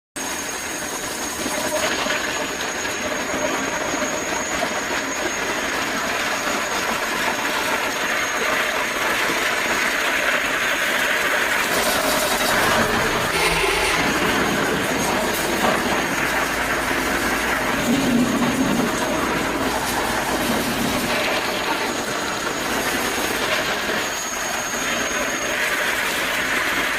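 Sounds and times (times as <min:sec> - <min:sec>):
high-pitched machine whine: 0:00.2 - 0:26.9
machinery running: 0:10.2 - 0:26.3.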